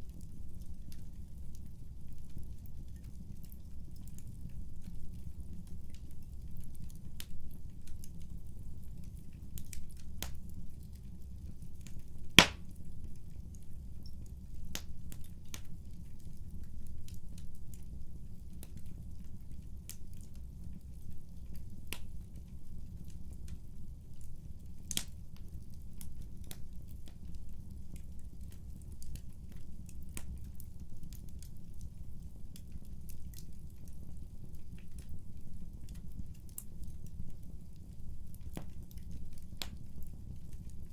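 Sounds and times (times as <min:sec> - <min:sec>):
wood fire crackling and popping: 0:12.4 - 0:12.6.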